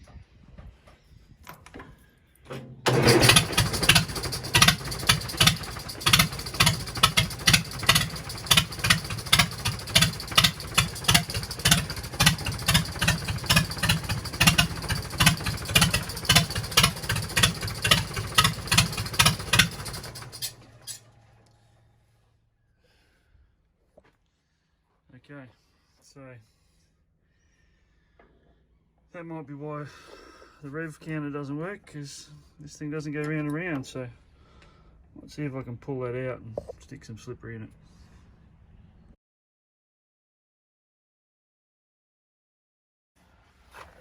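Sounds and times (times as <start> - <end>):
tractor engine pulsing: 2.8 - 21.0.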